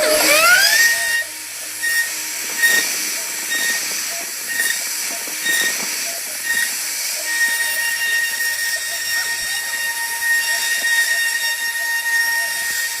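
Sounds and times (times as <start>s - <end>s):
bit cutting wood hiss: 0.0s - 13.0s
cnc router spindle whining: 0.0s - 13.0s.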